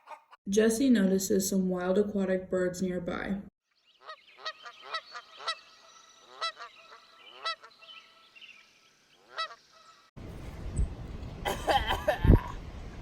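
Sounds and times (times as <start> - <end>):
geese honking: 4.0 - 10.1.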